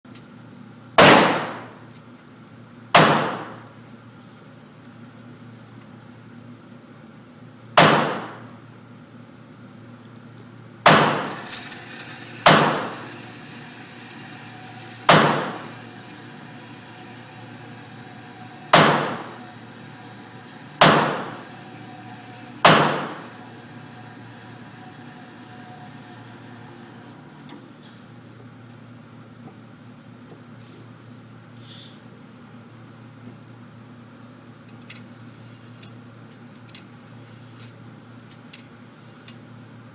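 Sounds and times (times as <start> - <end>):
rifle shots: 1.0 - 1.7, 3.0 - 3.6, 7.8 - 8.4, 10.9 - 11.4, 12.5 - 12.9, 15.1 - 15.6, 18.8 - 19.2, 20.8 - 21.3, 22.7 - 23.2.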